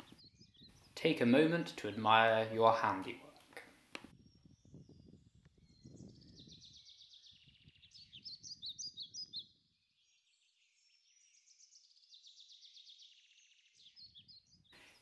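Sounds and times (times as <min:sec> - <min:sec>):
sharp bird chirps: 0:04.2 - 0:09.6.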